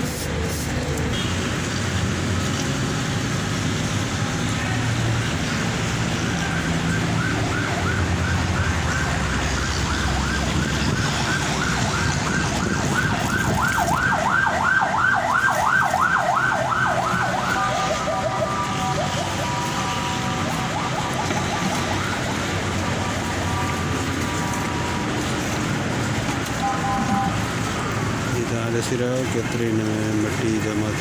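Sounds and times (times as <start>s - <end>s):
siren wailing: 5.9s - 28.8s.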